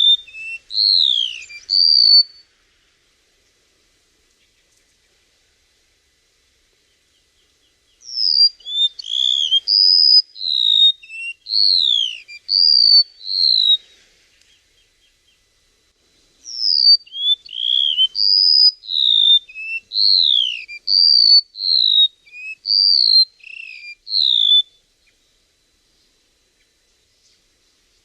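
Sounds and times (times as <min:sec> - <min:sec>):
bird singing high whistled notes: 0:00.0 - 0:02.5, 0:07.9 - 0:13.8, 0:16.4 - 0:25.2.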